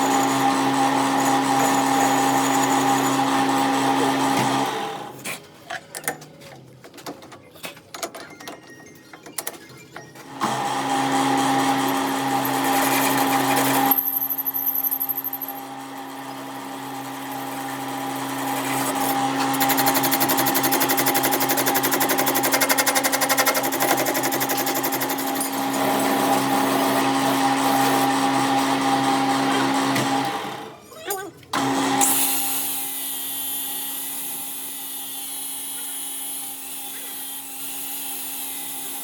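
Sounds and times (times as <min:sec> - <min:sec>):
workshop machine humming and rattling: 0:00.0 - 0:39.0.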